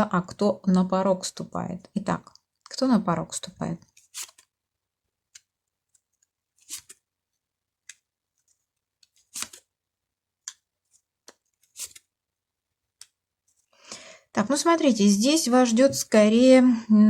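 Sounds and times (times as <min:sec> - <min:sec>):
cards snapping and swishing: 0:04.0 - 0:04.5, 0:06.6 - 0:07.0, 0:09.0 - 0:09.7, 0:11.2 - 0:12.1.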